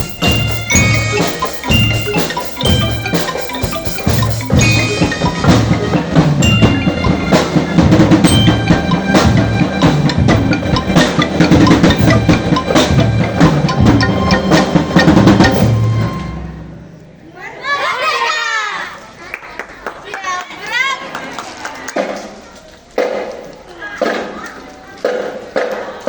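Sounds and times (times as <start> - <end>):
bass and snare drums: 0.0 - 16.2
glockenspiel tones: 0.0 - 16.3.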